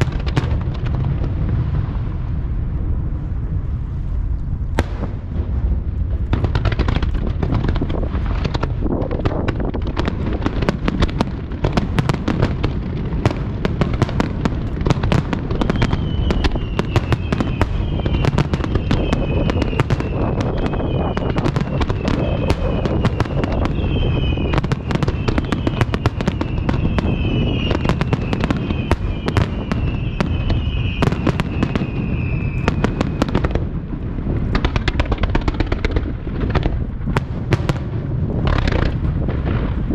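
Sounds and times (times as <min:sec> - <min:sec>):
continuous rumble: 0:00.0 - 0:39.9
fireworks cracks and bangs: 0:00.0 - 0:39.9
whistling fireworks shells: 0:06.4 - 0:33.6.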